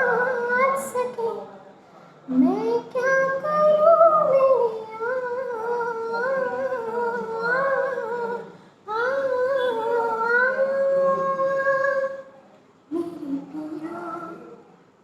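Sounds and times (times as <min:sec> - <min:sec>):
high voice humming a melody: 0:04.6 - 0:12.1.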